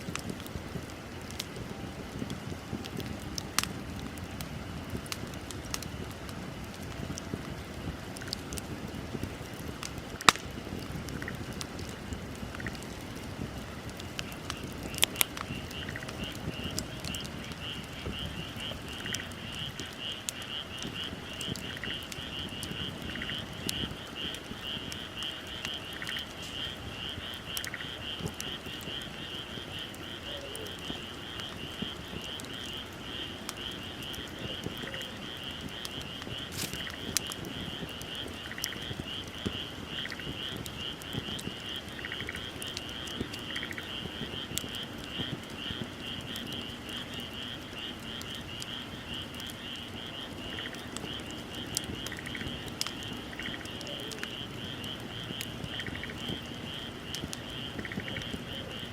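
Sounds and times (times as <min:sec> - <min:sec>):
wood fire crackling and popping: 0:00.0 - 0:58.9
chorus of night animals calling: 0:14.4 - 0:58.9
soft animal call: 0:30.2 - 0:31.1.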